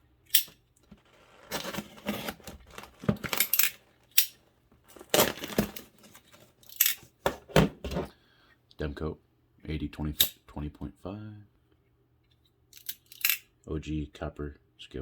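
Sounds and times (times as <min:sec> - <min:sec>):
tape cutting and tearing: 0:00.4 - 0:04.3, 0:04.9 - 0:07.0
packaging rustling: 0:00.8 - 0:04.2, 0:04.8 - 0:08.1.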